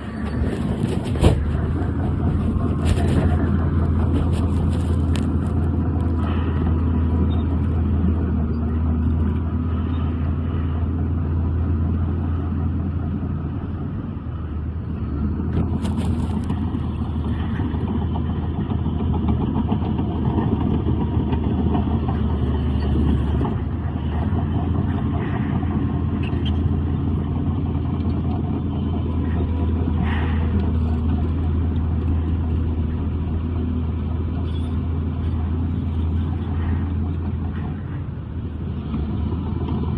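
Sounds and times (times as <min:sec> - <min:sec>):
heavy diesel machinery droning: 0:00.0 - 0:39.9
sharp knocks or squeaks: 0:34.4 - 0:35.4.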